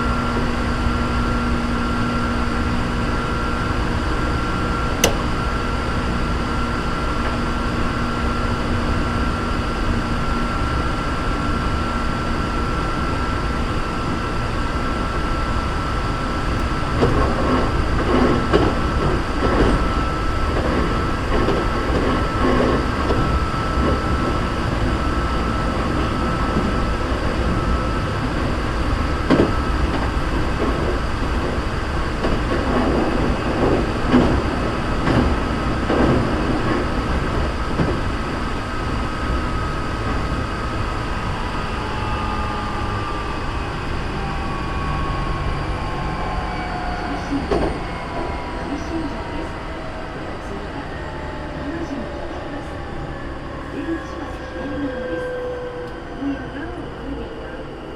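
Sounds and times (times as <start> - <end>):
sharp clicks: 5.0 - 5.4.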